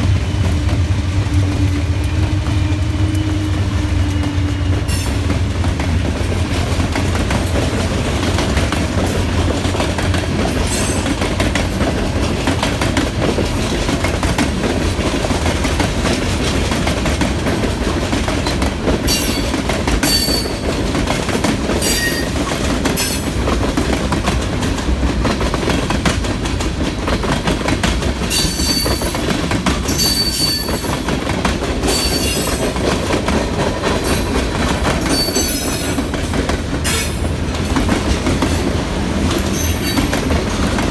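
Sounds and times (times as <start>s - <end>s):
freight train wheels rumbling: 0.0s - 40.9s
high-pitched wheel squeals: 29.9s - 30.8s, 35.0s - 35.7s.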